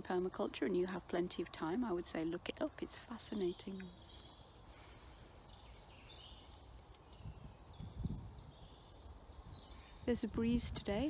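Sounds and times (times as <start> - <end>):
small birds singing: 0.0 - 11.0
wind rumble on microphone: 3.9 - 11.0.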